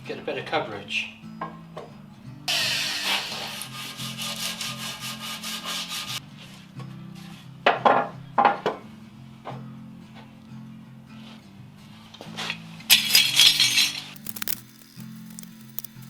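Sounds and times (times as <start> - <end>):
quiet background music: 0.0 - 16.0
sanding wood: 3.0 - 6.2.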